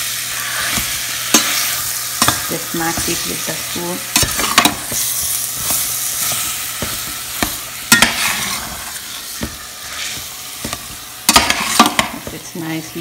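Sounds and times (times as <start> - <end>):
food sizzling in a pot: 0.0 - 13.0
metal spoon scraping and knocking pot: 4.1 - 8.8, 9.4 - 12.4.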